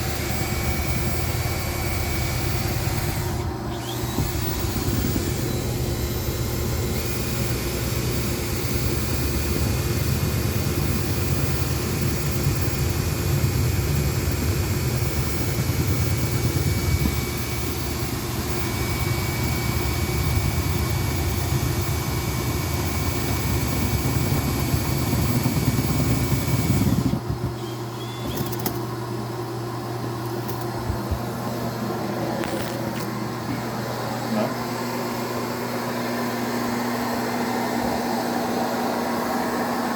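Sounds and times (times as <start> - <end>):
thin high whine: 0.0 - 29.0
duct cleaning motor drone: 0.0 - 39.9.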